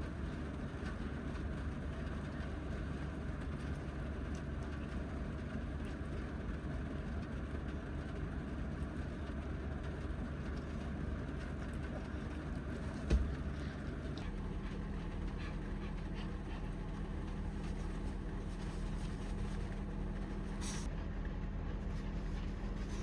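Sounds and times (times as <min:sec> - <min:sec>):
low hum: 0:11.3 - 0:23.0
thump: 0:13.1 - 0:13.4.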